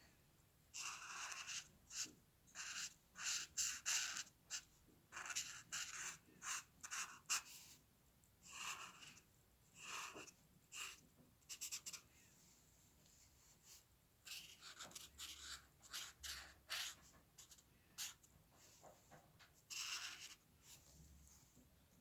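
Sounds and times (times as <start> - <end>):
pencil scratching on paper: 0.7 - 7.8, 8.4 - 12.1, 13.7 - 18.7, 19.7 - 20.9.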